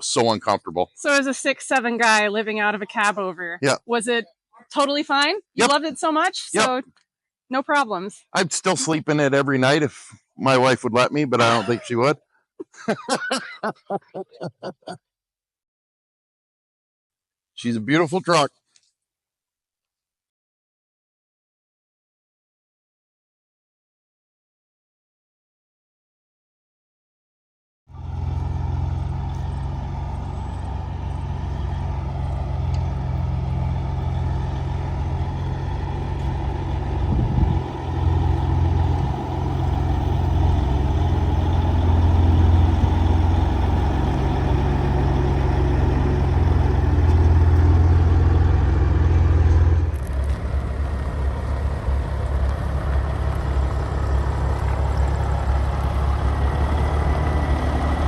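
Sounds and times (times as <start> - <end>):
diesel truck engine drone: 27.9 - 58.0.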